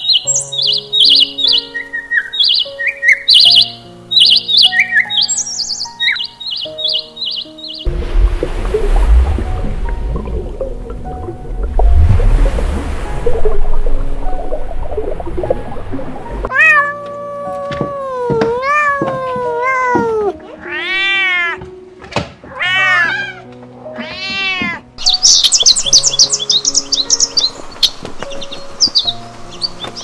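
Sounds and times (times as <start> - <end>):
high bird chirping: 0.0 - 7.9, 25.0 - 30.0
background music: 0.0 - 30.0.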